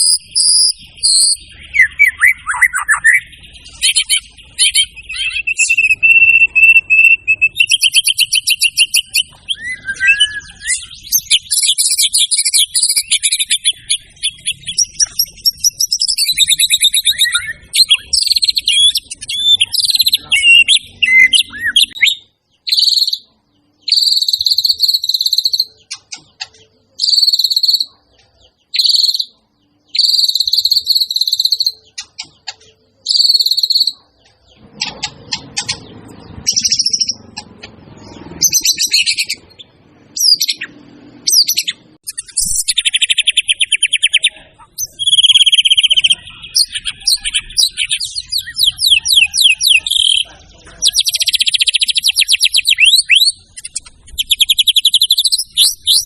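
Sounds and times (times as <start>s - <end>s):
bird singing: 0.0s - 56.0s.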